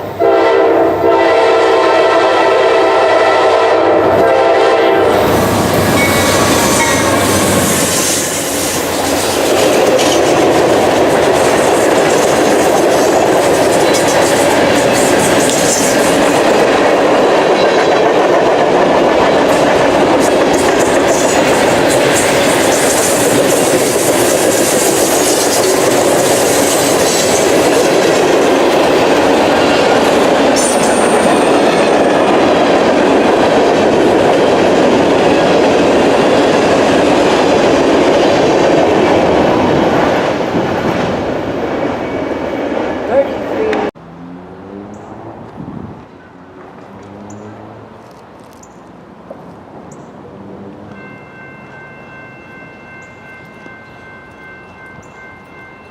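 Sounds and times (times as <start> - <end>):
freight train wheels rumbling: 0.0 - 44.0.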